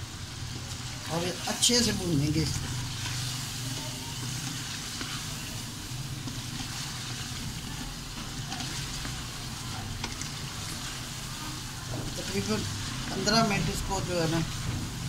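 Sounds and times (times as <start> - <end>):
food sizzling in a pot: 0.0 - 15.0
spatula scraping a pan: 1.6 - 15.0.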